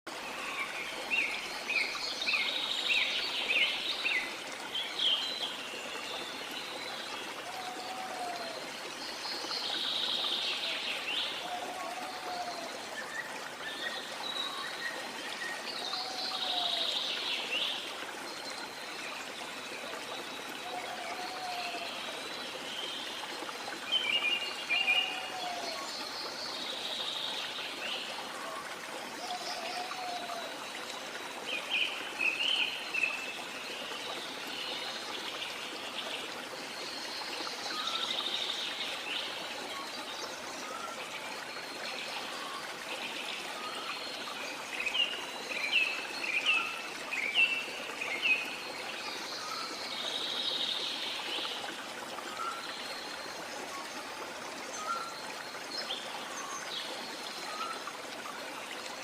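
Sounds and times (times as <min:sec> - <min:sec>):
falling water hiss: 0:00.1 - 0:30.6.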